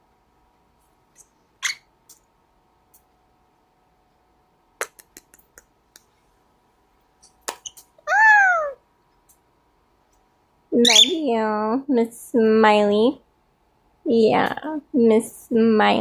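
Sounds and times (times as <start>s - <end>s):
cockatiel beak clicks: 4.8s - 6.1s.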